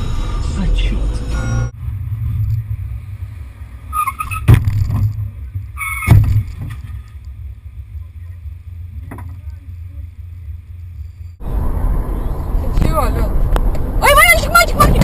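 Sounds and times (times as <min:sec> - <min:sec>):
moving car rumble from inside: 0:00.0 - 0:15.0
brief high squeak: 0:03.9 - 0:04.5, 0:05.8 - 0:06.1
loud thumps: 0:04.1 - 0:07.9.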